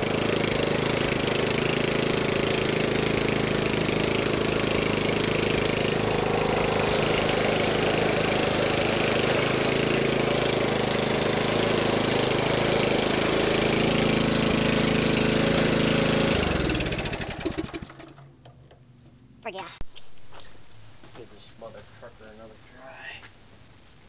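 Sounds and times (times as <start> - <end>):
small engine running: 0.0 - 18.3.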